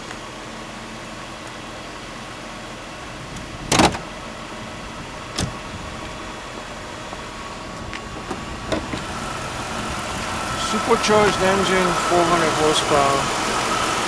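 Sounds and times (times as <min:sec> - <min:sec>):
steady low hum: 0:00.0 - 0:14.0
sharp clunk of car body: 0:03.7 - 0:04.1.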